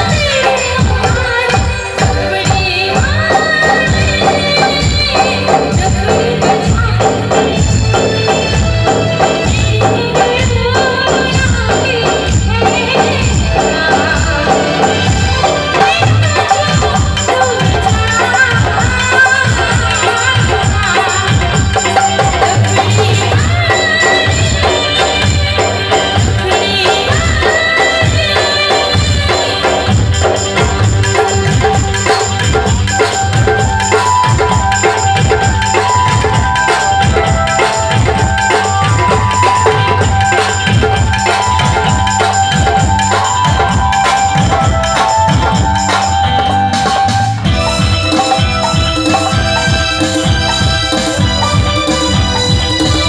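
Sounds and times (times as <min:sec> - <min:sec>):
frame drums with jingles: 0:00.0 - 0:53.0.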